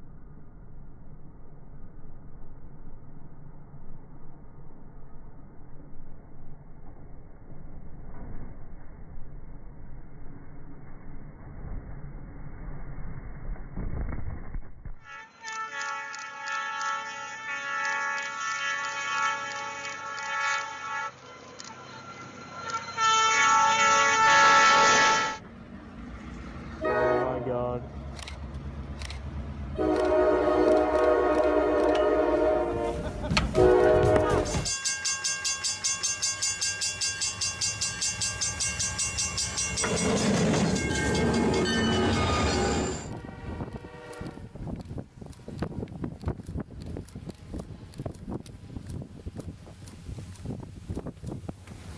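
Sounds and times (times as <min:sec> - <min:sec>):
train air horn chord: 0:15.1 - 0:21.4, 0:22.8 - 0:25.4, 0:26.8 - 0:27.5, 0:29.8 - 0:34.7, 0:43.1 - 0:44.5
train rushing noise: 0:15.5 - 0:51.9
train wheels clattering on rails: 0:33.2 - 0:43.2.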